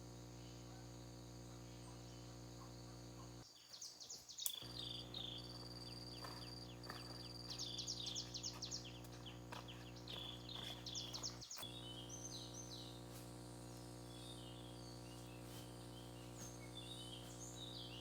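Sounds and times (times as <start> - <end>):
insects chirping: 0.0 - 18.0
birds chirping: 1.5 - 18.0
low steady hum: 4.6 - 18.0.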